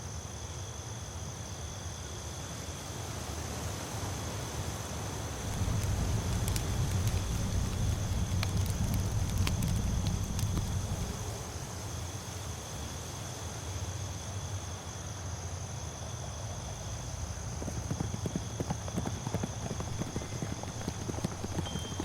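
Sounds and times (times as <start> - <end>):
horse hooves clip-clopping: 5.4 - 11.7, 16.8 - 22.0
low rumble: 5.4 - 11.7, 19.5 - 22.0.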